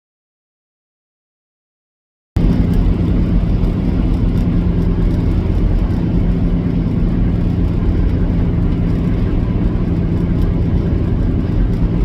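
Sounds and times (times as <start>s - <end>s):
low hum: 2.4s - 12.0s
semi truck engine and road drone: 2.4s - 12.0s.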